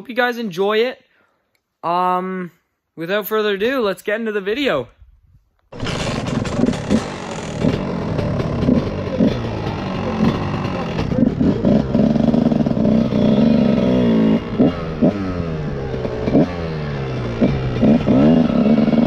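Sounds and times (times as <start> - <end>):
motorcycle engine revving: 5.7 - 19.0.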